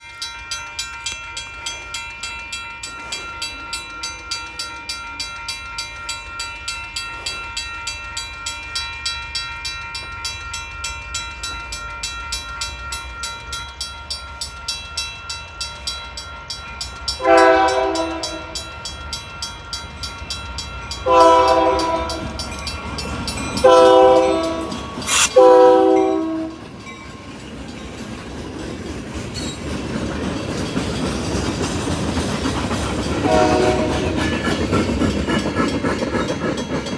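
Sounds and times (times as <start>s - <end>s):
train rumbling: 0.5s - 36.9s
locomotive air horn blasts: 17.2s - 18.6s, 21.1s - 22.3s, 23.6s - 26.6s, 33.2s - 34.1s.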